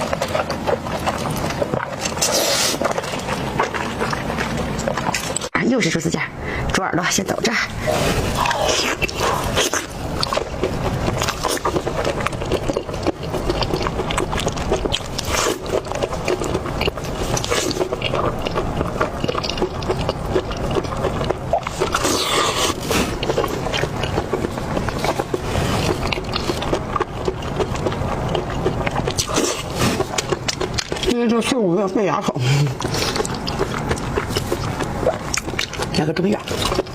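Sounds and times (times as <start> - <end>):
chewing crunchy cartilage: 0.0 - 6.8, 7.7 - 36.9
wet mouth sounds: 0.0 - 6.8, 7.6 - 31.2, 32.2 - 36.9.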